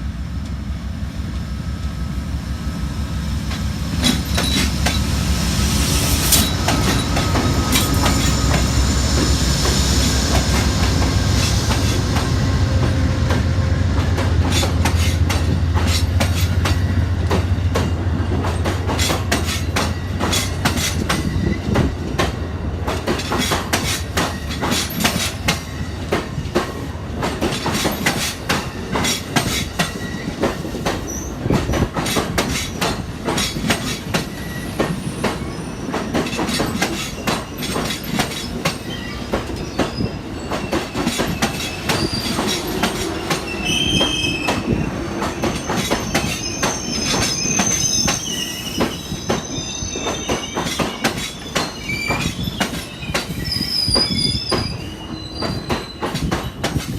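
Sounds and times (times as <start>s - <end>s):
train wheels clicking over rails: 0.2s - 56.9s
high-pitched wheel squeal: 38.8s - 56.3s.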